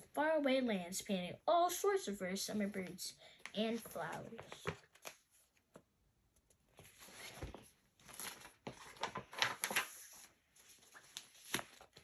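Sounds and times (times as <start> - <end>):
book pages turning: 3.5 - 5.9, 6.5 - 12.0.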